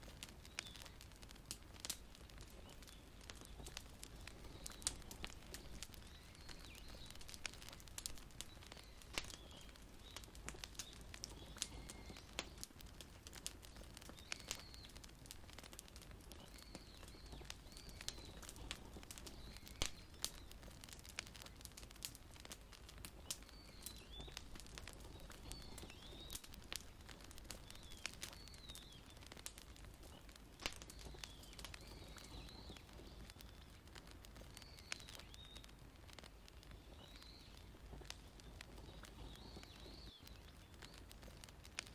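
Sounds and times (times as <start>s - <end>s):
wood fire crackling and popping: 0.0s - 41.9s
bird chirping: 2.5s - 12.6s, 13.6s - 15.0s, 16.3s - 18.6s, 19.2s - 20.6s, 23.2s - 33.8s, 36.6s - 41.1s.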